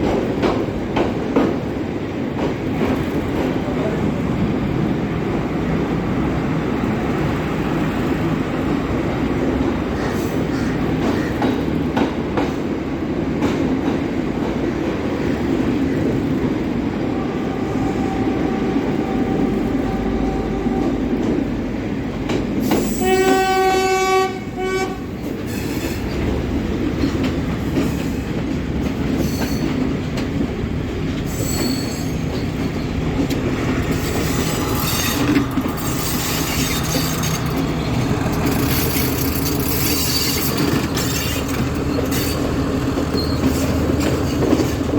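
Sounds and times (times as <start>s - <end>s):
train rolling on rails: 0.0s - 44.9s
train horn blast: 17.1s - 21.2s, 22.8s - 25.2s
high wheel squeals: 31.3s - 32.9s, 33.8s - 44.7s.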